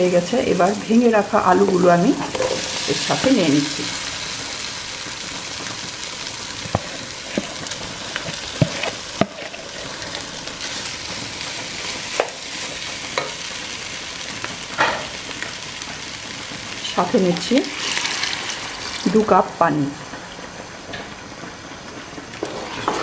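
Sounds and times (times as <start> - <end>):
potatoes sizzling in oil: 0.0 - 23.0
spatula knocking and scraping pot: 1.6 - 4.0, 8.4 - 9.7.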